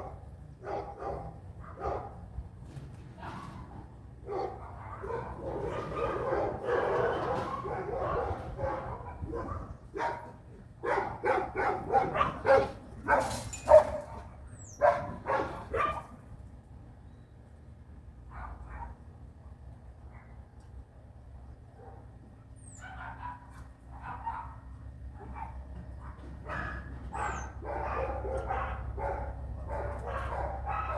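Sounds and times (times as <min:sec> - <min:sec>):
dog barking and yapping: 0:00.6 - 0:02.2, 0:04.3 - 0:16.1, 0:22.8 - 0:24.6, 0:25.2 - 0:30.9.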